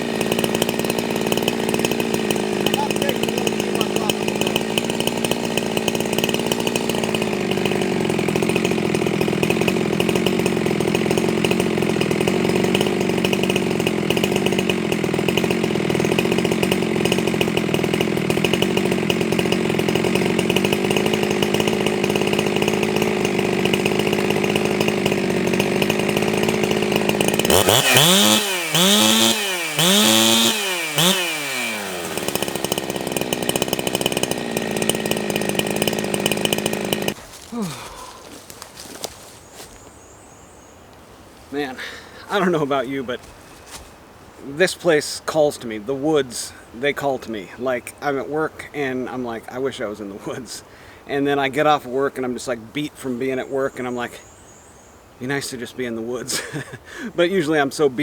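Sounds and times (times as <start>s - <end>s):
chainsaw running at high revs: 0.0s - 40.2s, 41.6s - 43.8s, 55.3s - 58.0s.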